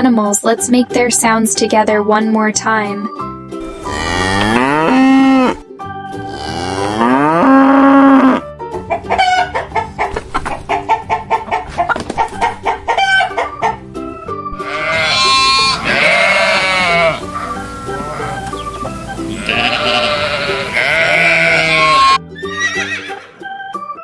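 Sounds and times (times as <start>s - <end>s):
hen clucking: 3.6s - 5.6s, 8.1s - 13.8s, 14.6s - 22.8s
cow mooing: 3.6s - 8.5s, 14.6s - 23.2s
sheep bleating: 3.6s - 8.5s, 14.6s - 23.3s.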